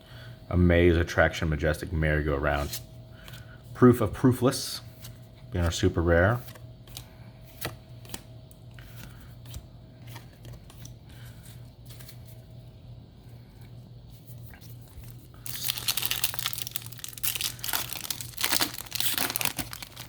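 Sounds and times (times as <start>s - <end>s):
foil pack tearing and crinkling: 15.0s - 20.0s.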